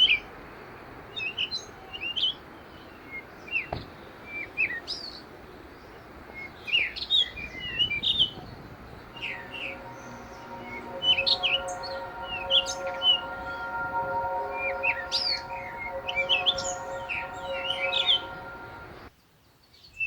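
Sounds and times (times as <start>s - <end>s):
steady held tones: 8.5s - 19.1s.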